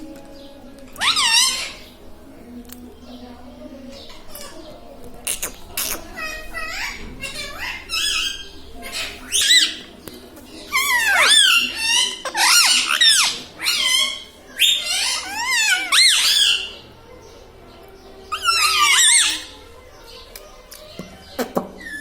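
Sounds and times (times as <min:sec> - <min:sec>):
parrot shrill squeaky calls: 0:01.0 - 0:01.8, 0:05.3 - 0:09.8, 0:10.7 - 0:16.8, 0:18.3 - 0:19.6.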